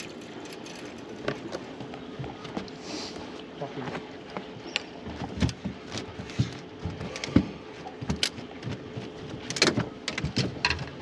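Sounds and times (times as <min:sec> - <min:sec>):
fish flapping knocks on boat: 0:05.1 - 0:11.0.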